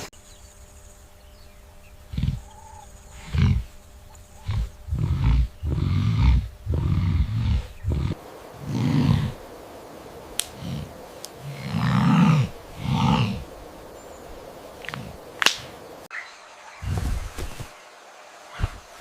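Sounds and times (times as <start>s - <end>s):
big cat roaring grunts: 2.1s - 3.8s, 4.4s - 9.4s, 10.5s - 13.5s.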